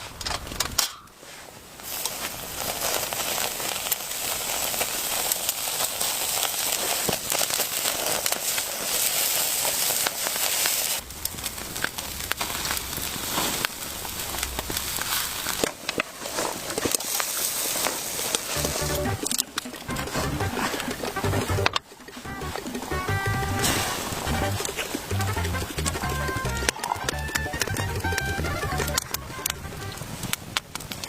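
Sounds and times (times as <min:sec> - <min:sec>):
steady hiss: 0:00.0 - 0:19.9
dense crackling and pops: 0:00.0 - 0:31.0.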